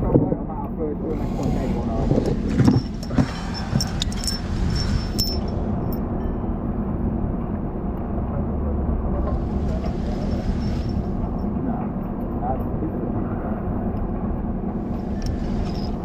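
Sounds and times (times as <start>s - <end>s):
engine running: 0.6s - 16.0s
metallic clinks of bolts: 2.8s - 6.1s.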